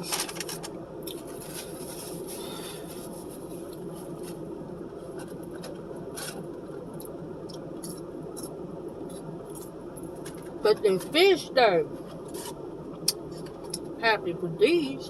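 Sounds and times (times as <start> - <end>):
crackles and rustles: 0.0 - 7.1.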